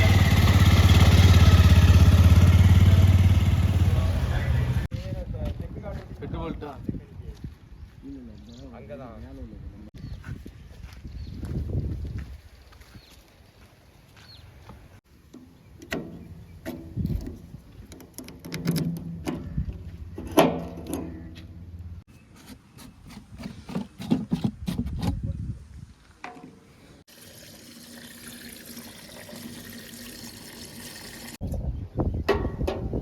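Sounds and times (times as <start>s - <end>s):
diesel engine revving: 0.0s - 4.9s
bucket clanking: 15.3s - 21.3s
running water noise: 27.0s - 31.4s.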